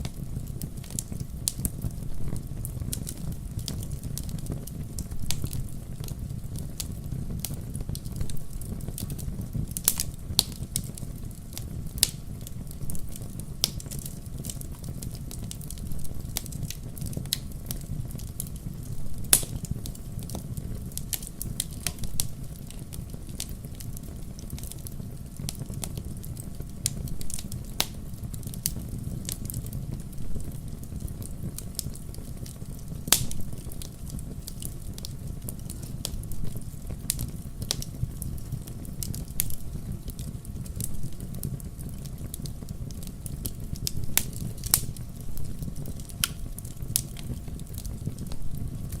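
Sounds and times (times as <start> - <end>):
fire crackling and popping: 0.0 - 49.0
fire rumbling in a fireplace: 0.0 - 49.0.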